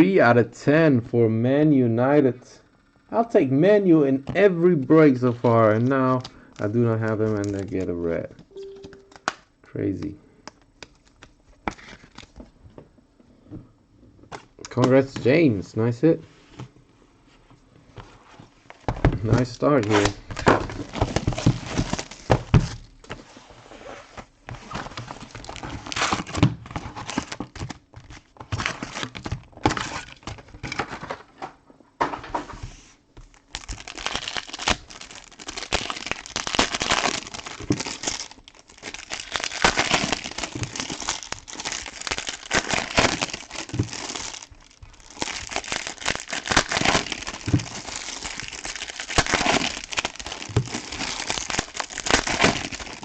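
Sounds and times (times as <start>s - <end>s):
foil wrappers crinkling: 5.5s - 8.0s, 24.6s - 30.5s, 33.2s - 53.0s.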